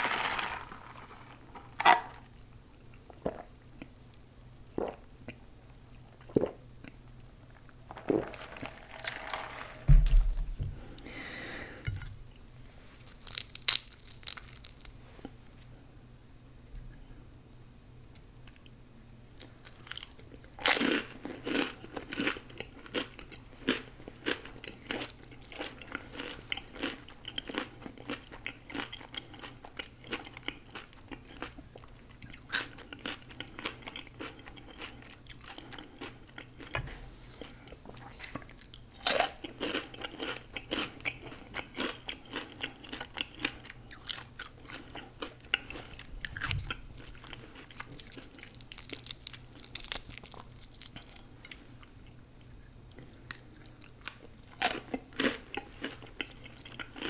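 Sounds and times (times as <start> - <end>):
crunching and chewing: 13.0 - 15.7, 19.4 - 36.8, 37.4 - 57.0
crunchy bite: 13.1 - 14.9, 46.3 - 51.2.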